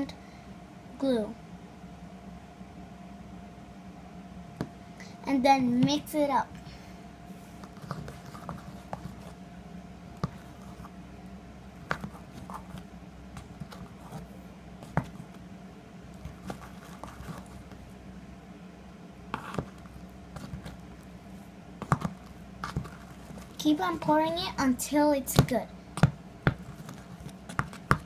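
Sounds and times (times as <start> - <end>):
low hum: 0.0 - 28.0
slime squishing: 16.1 - 17.9, 19.3 - 21.0, 21.8 - 24.1, 25.3 - 28.0.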